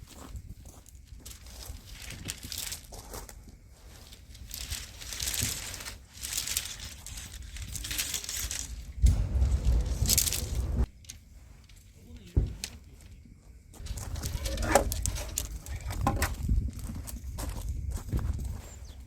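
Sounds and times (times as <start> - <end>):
material crinkling and rustling: 4.1 - 9.3.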